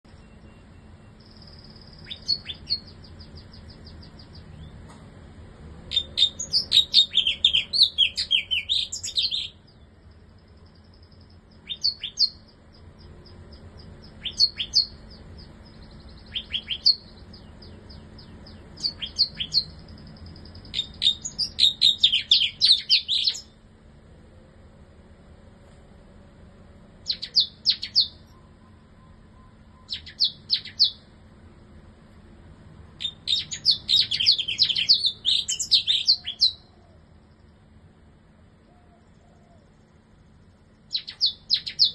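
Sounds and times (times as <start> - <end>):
bird rapid high chirping: 0.1 - 4.8, 5.9 - 23.6, 27.0 - 31.1, 33.0 - 36.7, 40.8 - 41.9
high buzzing bird trill: 0.1 - 4.8, 5.9 - 23.6, 27.0 - 31.2, 32.9 - 37.7, 38.7 - 41.9.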